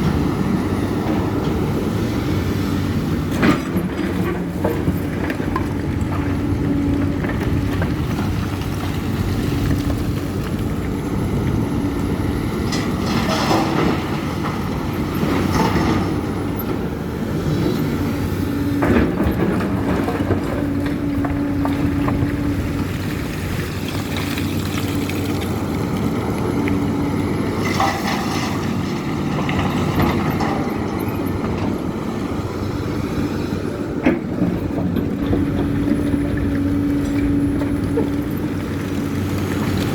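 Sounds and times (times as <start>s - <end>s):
excavator diesel engine: 0.0s - 39.9s
machine clattering and clanking: 12.5s - 16.9s, 27.5s - 32.0s.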